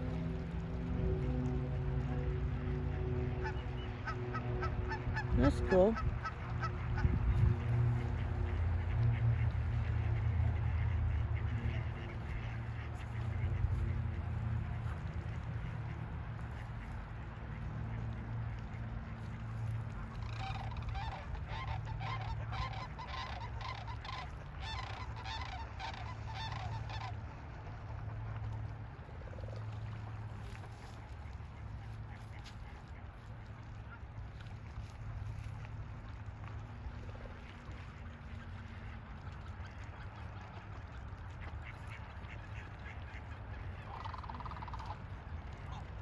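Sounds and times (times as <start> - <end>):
geese honking: 0.0 - 27.6, 38.0 - 45.9
steady low hum: 0.0 - 43.9
ducks quacking: 0.1 - 35.8, 36.5 - 46.0
wind rumble on microphone: 3.3 - 25.8.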